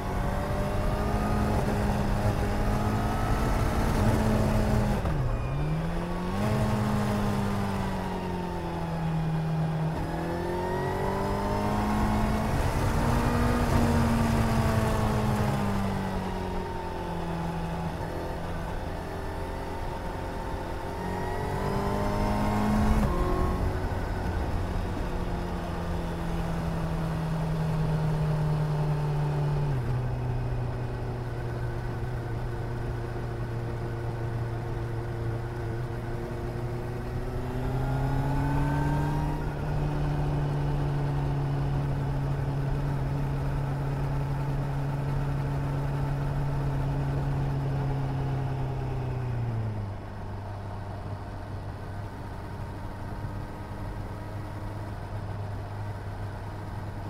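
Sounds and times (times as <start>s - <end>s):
motorcycle engine revving: 19.2s - 27.1s.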